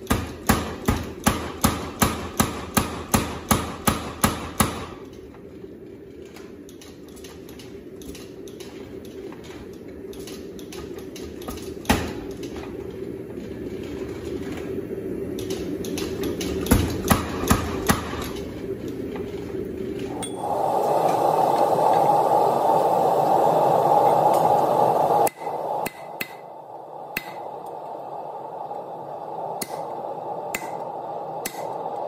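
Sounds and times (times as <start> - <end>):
hammer striking steel: 0.0 - 5.0, 25.3 - 26.5, 27.1 - 27.5, 29.6 - 29.9, 30.5 - 30.8, 31.4 - 31.8
forge roaring: 19.6 - 32.0.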